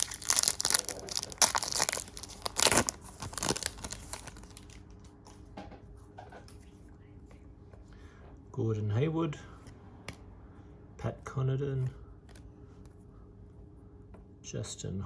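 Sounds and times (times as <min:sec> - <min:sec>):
card pack wrapper tearing: 0:00.0 - 0:04.8
faint wrapper rustling: 0:00.0 - 0:05.0.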